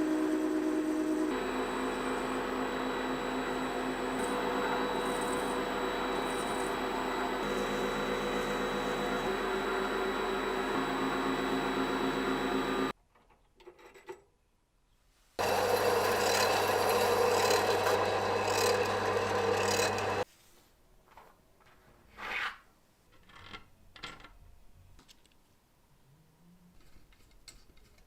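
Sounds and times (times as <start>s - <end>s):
motorised tool rasping: 4.0s - 11.6s, 15.4s - 20.2s.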